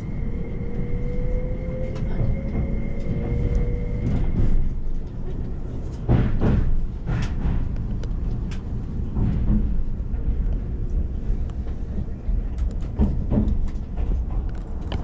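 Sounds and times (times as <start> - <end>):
faint rising whine: 0.0 - 4.4
train low rumble: 0.0 - 15.0.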